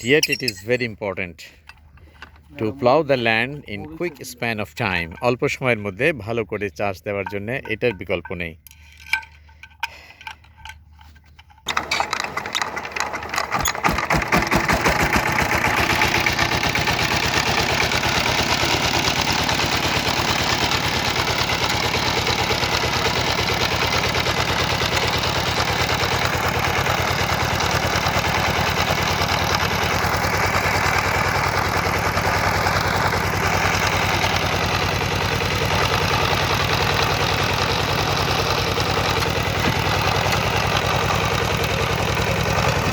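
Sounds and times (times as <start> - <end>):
tiller engine starting: 8.6 - 42.9.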